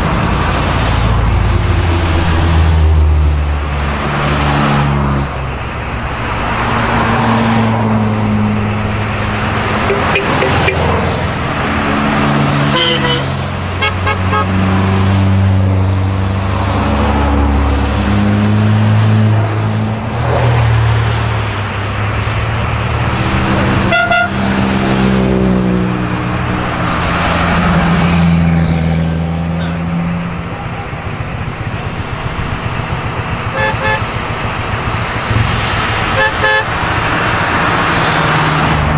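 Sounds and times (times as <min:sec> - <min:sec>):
race car engines passing: 0:00.0 - 0:38.9
car horns tooting: 0:09.7 - 0:11.2, 0:12.6 - 0:14.6, 0:23.8 - 0:24.5, 0:33.4 - 0:34.2, 0:36.1 - 0:36.8.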